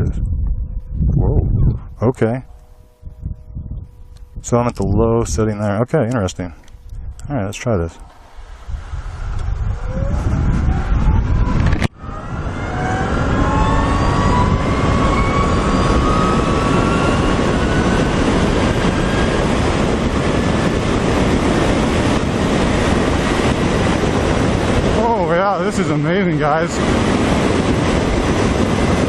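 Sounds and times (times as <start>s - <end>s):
wind rush on microphone: 0.0s - 29.0s
electric motorcycle motor whining: 8.4s - 24.8s.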